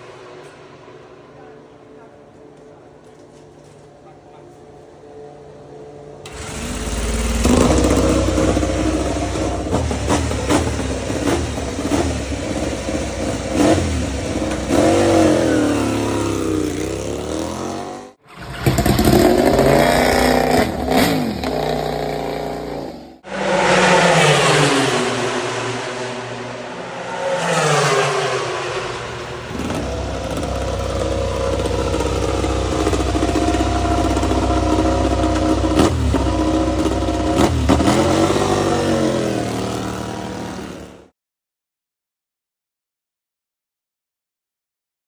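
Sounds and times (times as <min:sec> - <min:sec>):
racing motorcycle engines revving: 0:06.2 - 0:41.1.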